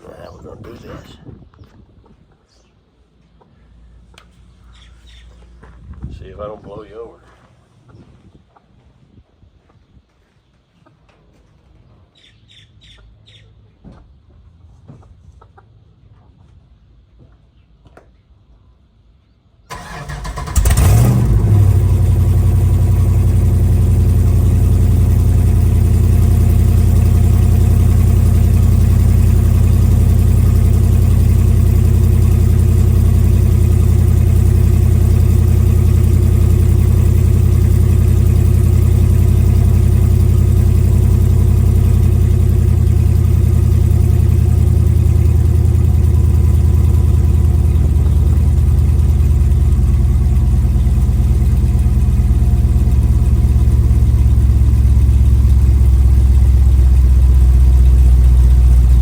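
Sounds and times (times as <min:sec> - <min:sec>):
engine cranking and starting: 0:19.7 - 0:23.9
engine idling: 0:19.7 - 0:59.0.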